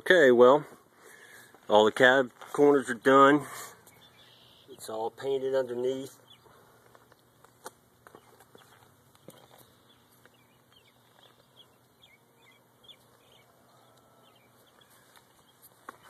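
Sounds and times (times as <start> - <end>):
faint bird chirps: 3.8 - 4.8.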